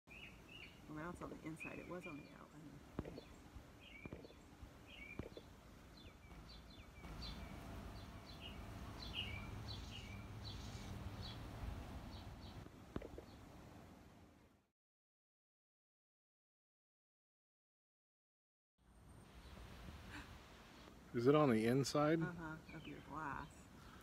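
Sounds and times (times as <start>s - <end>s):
small bird chirping: 0.1s - 11.5s, 12.1s - 13.4s, 22.4s - 24.0s
low steady hum: 0.1s - 14.6s, 18.9s - 24.0s.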